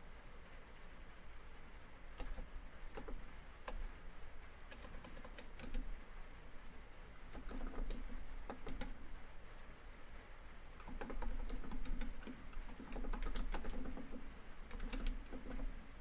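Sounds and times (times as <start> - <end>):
rain on a tin roof: 0.0 - 16.0
typing on laptop keyboard: 2.2 - 3.9, 4.7 - 5.9, 7.3 - 9.0, 10.8 - 16.0.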